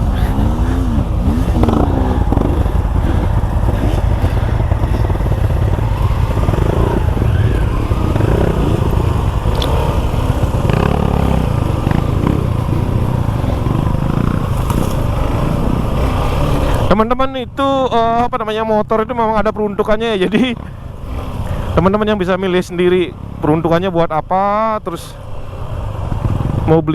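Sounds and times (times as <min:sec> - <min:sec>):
motorcycle engine running: 0:00.0 - 0:18.2, 0:25.2 - 0:26.8.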